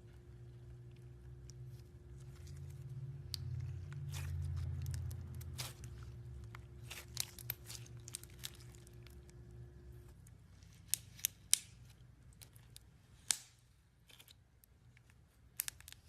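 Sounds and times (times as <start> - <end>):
slime crackling and popping: 2.3 - 9.4, 10.2 - 13.6, 15.4 - 16.0.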